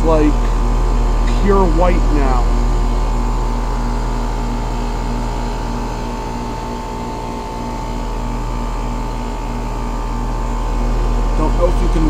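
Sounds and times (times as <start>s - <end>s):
heat pump compressor and fan hum: 0.0s - 12.0s.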